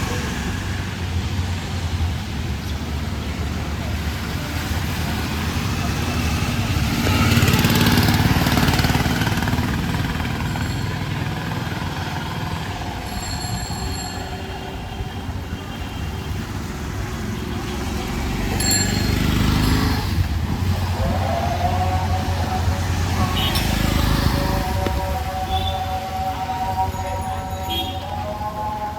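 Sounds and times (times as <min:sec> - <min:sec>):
vehicle engines passing: 0:00.0 - 0:28.9
short high bell rings: 0:10.4 - 0:11.3, 0:13.0 - 0:14.7, 0:18.6 - 0:20.0.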